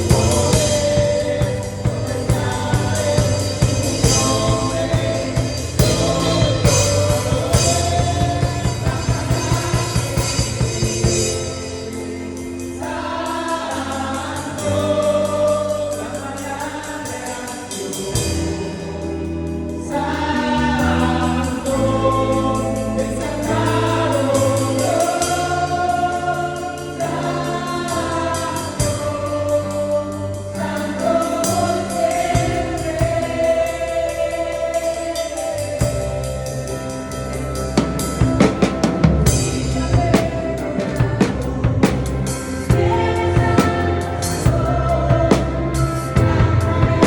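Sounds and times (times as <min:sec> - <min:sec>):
drum kit hits: 0:00.0 - 0:11.6, 0:37.6 - 0:47.0
group singing worship song: 0:00.0 - 0:47.0
sustained bass notes: 0:00.0 - 0:47.0.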